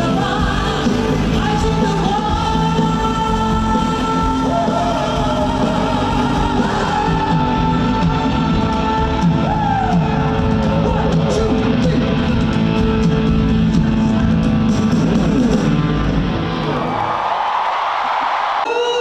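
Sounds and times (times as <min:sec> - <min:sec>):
live rock band with electric guitar: 0:00.0 - 0:18.7
crowd cheering: 0:02.1 - 0:12.4, 0:14.9 - 0:19.0.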